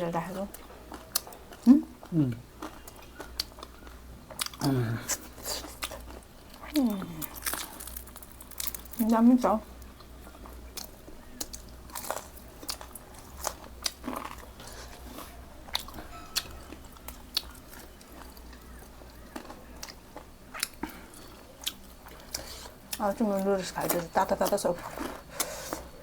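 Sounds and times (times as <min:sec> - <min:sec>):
person chewing food: 0:00.5 - 0:09.0, 0:09.8 - 0:23.1, 0:23.8 - 0:26.0.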